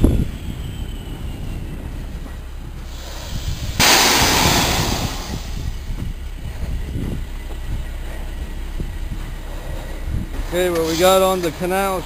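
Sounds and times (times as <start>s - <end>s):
diesel truck engine rumbling: 0.0s - 12.0s
loud air hiss: 2.8s - 5.8s.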